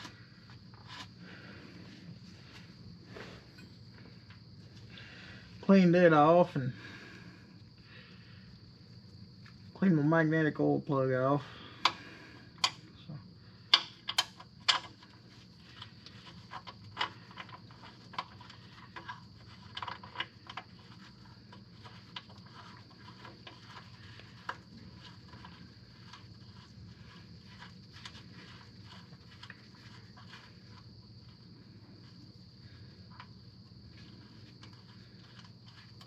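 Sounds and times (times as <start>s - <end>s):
faint steady hum: 0.0s - 36.0s
tools clicking and tapping: 12.6s - 12.8s, 13.7s - 15.0s.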